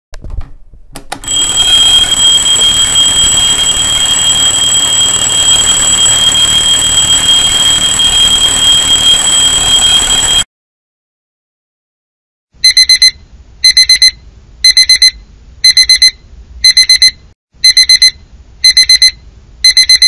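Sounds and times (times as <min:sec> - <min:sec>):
alarm clock ringing: 0:01.2 - 0:10.5.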